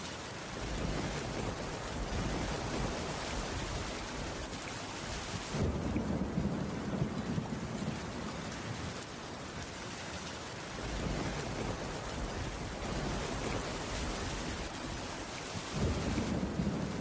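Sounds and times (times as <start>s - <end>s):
steady rain: 0.0s - 17.0s
low thunder rumble: 5.5s - 8.8s, 10.8s - 14.7s, 15.7s - 17.0s.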